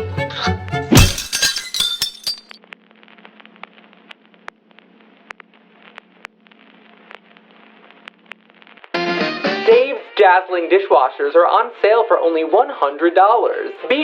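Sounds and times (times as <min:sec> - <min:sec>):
tableware clinking: 0:01.0 - 0:02.6
faint steady hum: 0:01.0 - 0:08.9.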